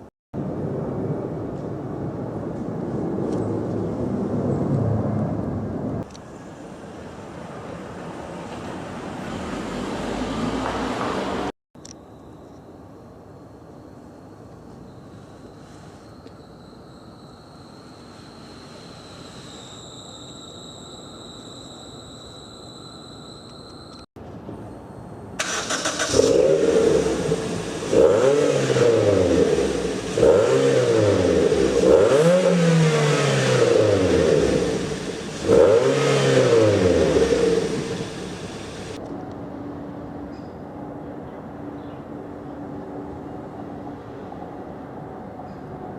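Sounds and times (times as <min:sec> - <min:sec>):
steady hiss with high whine: 0:11.9 - 0:25.4
car engine idling: 0:25.4 - 0:28.0, 0:33.7 - 0:39.0
car engine revving: 0:25.4 - 0:39.0.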